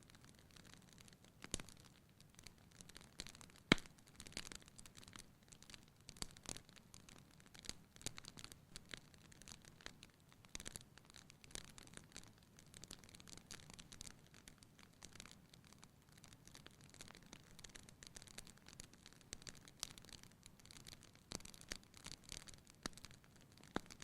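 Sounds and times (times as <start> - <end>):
faint wood fire crackling: 0.0 - 24.0.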